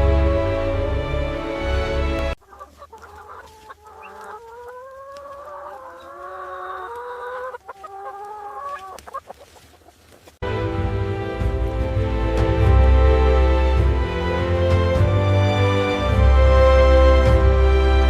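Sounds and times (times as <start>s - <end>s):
background music: 0.0s - 2.4s, 10.4s - 18.0s.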